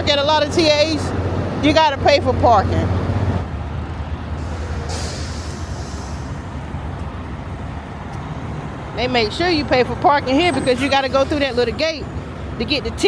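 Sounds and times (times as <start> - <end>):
diesel truck engine idling: 0.0 - 13.0
air brakes hissing: 4.4 - 6.8, 10.3 - 12.6.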